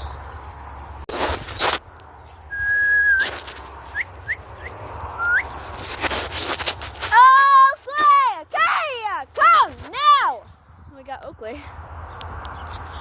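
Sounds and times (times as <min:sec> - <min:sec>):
person whistling to call dogs: 0:02.5 - 0:03.3, 0:05.2 - 0:05.5.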